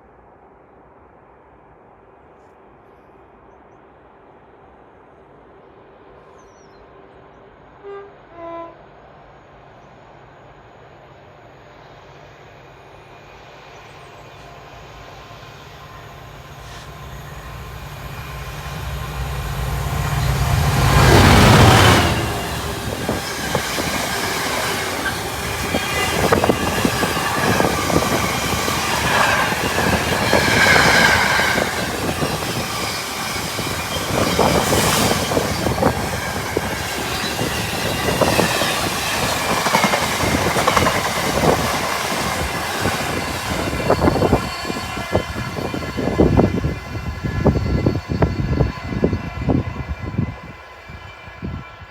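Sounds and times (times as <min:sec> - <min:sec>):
diesel locomotive engine: 0:03.2 - 0:51.9
wheel squeal: 0:20.2 - 0:41.6, 0:42.3 - 0:50.4.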